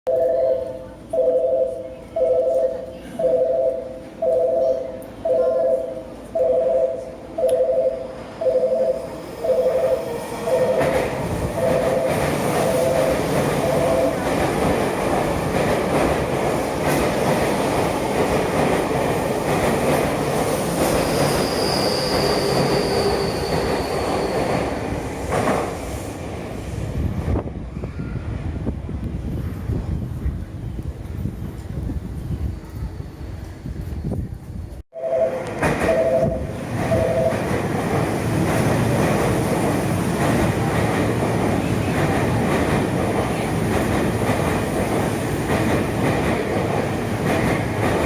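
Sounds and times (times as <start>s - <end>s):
two-tone station warning chime: 0.1s - 14.2s, 35.0s - 37.4s
train high whine: 0.1s - 29.6s, 35.0s - 42.0s
electric train passing: 0.1s - 33.9s, 35.0s - 48.0s.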